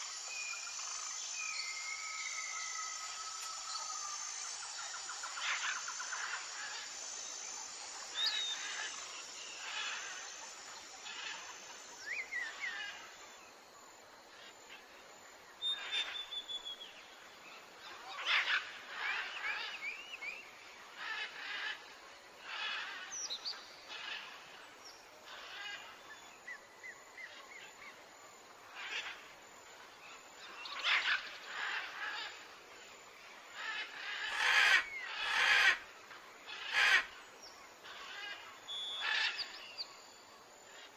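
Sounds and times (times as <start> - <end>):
birds calling and chirping: 33.6 - 35.9, 36.5 - 40.0.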